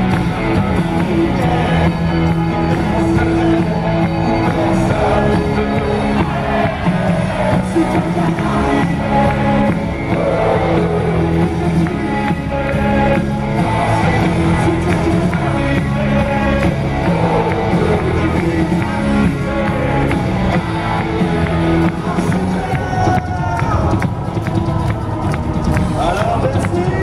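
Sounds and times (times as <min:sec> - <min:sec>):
person singing: 0:00.0 - 0:25.0
rock band playing: 0:00.0 - 0:27.0.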